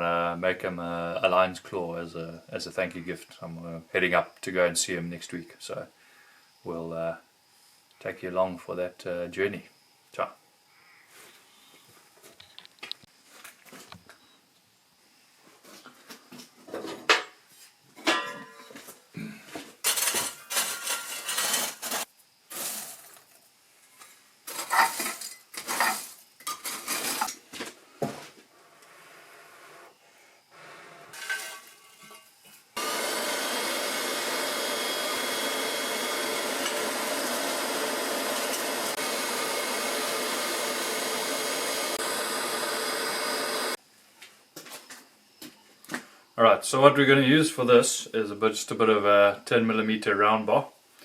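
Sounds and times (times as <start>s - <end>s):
metal clanking and rattling: 31.2s - 32.3s
steady hissing machine: 32.8s - 43.8s.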